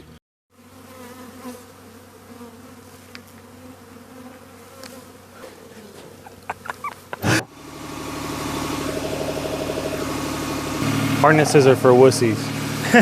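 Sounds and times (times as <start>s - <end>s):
honeybees buzzing: 0.6s - 13.0s
boom lift engine running: 7.2s - 13.0s.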